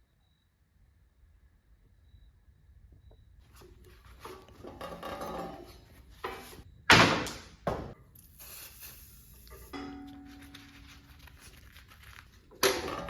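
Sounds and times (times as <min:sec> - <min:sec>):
metal parts scraping and rattling: 0:03.6 - 0:06.6.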